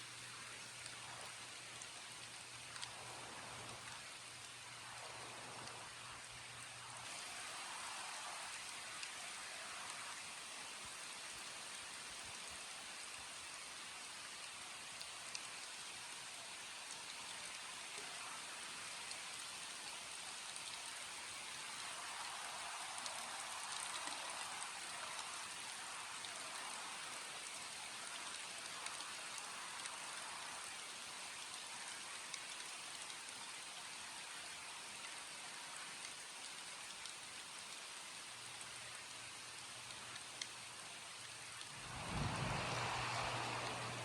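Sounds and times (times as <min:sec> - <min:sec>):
raindrop ticks: 0:00.0 - 0:06.7, 0:07.5 - 0:44.0
steady rainfall: 0:00.0 - 0:44.0.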